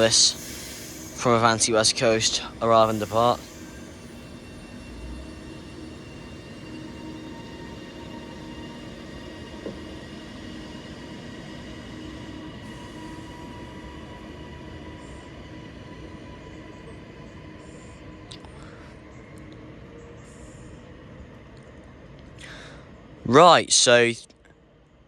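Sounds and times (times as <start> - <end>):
whining electrical tones: 0.0 - 16.9
electric train rumble and hum: 0.0 - 25.0.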